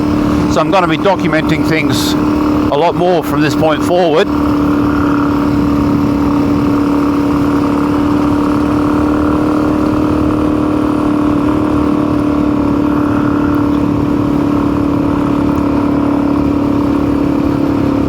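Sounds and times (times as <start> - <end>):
motorcycle engine running: 0.0 - 18.0
person talking: 0.4 - 4.4.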